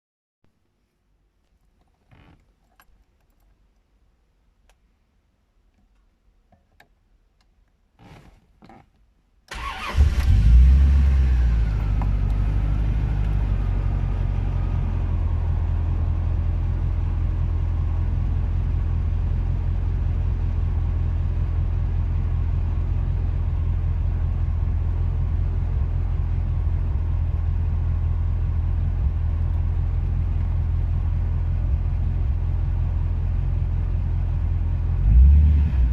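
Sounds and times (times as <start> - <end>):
car engine starting and idling: 9.5 - 35.9.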